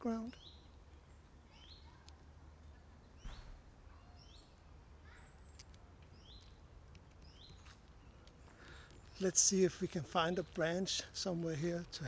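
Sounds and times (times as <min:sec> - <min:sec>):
songbird calling faintly: 0:00.0 - 0:12.0
thump: 0:03.2 - 0:03.6.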